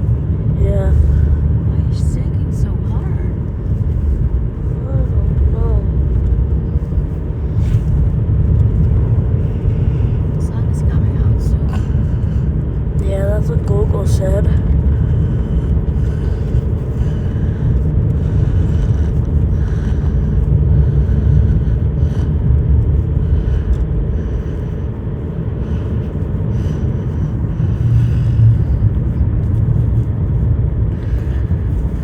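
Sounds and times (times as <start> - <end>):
vehicle rumbling on bumpy road: 0.0 - 32.0.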